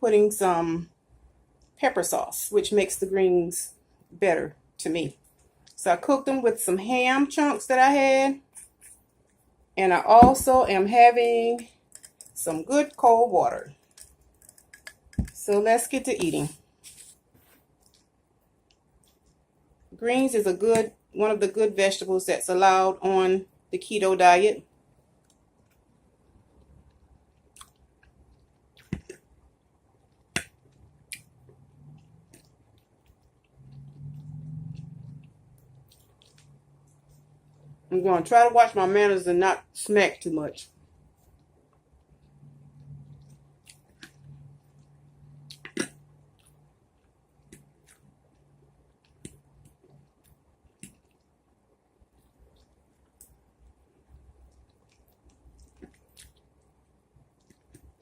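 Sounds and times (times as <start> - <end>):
person chewing: 27.4 - 29.2, 32.3 - 36.5, 43.0 - 51.3, 52.2 - 53.4, 54.1 - 56.7
wet mouth clicks: 27.5 - 29.2, 54.5 - 56.5.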